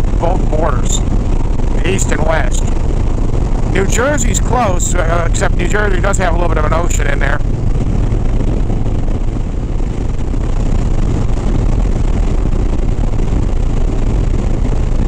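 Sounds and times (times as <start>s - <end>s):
motorcycle engine and road noise: 0.0s - 15.0s
wind buffeting microphone: 0.0s - 15.0s
wind rush: 0.0s - 15.0s.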